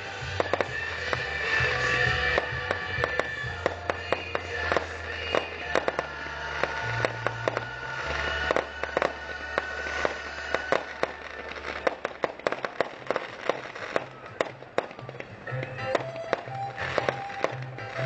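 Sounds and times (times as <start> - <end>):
music with low bass line: 0.0 - 11.8
fireworks bursting and crackling: 0.0 - 18.0.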